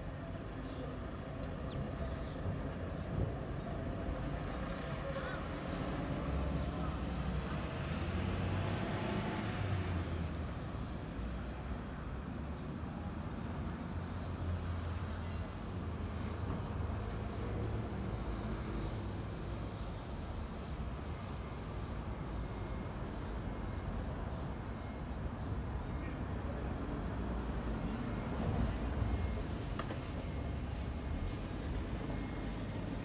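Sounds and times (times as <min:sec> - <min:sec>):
traffic rumble: 0:26.3 - 0:33.0
thin high squeal: 0:27.2 - 0:30.5.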